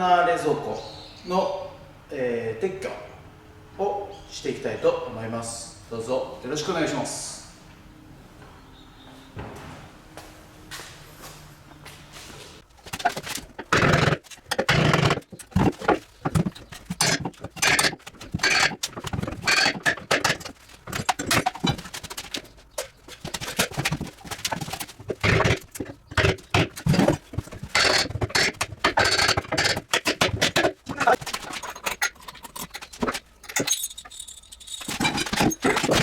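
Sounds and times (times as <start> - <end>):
knocks clatter and scraping: 12.6 - 36.0.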